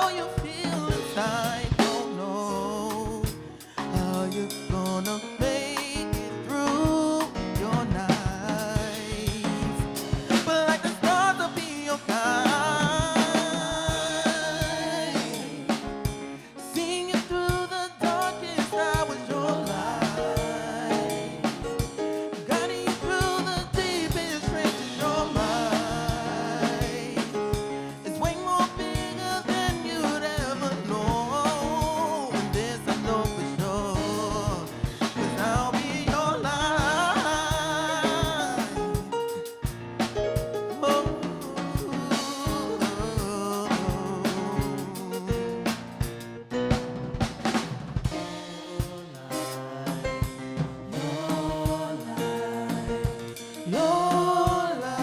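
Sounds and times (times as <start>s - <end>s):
drum kit beat: 0.0s - 55.0s
live soul band playing: 0.0s - 55.0s.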